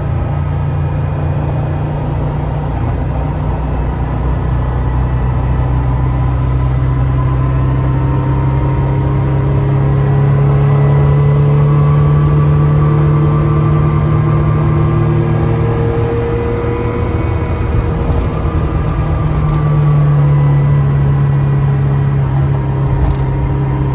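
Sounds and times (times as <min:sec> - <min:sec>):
car engine pulling under way: 0:17.4 - 0:21.0, 0:22.8 - 0:23.9.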